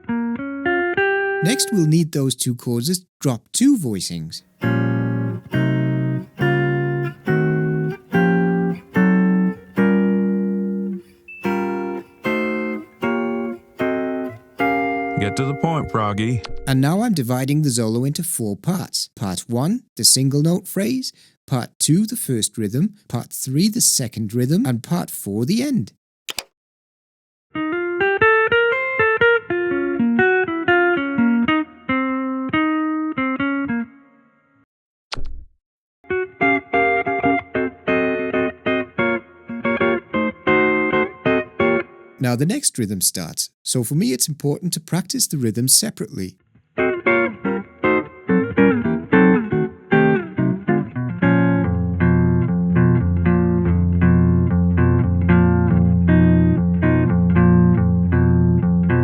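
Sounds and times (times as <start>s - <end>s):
guitar plucked chords: 0.0s - 2.3s, 4.1s - 16.6s, 27.6s - 34.1s, 36.1s - 43.0s, 45.8s - 59.0s.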